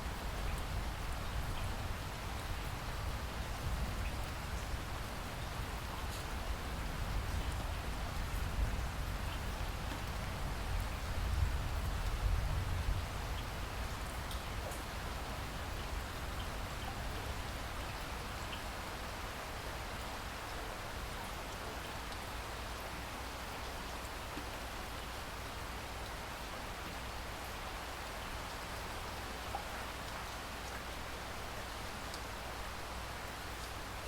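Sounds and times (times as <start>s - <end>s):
steady rain hiss: 0.0s - 34.0s
raindrop ticks: 13.4s - 14.9s, 32.1s - 32.3s.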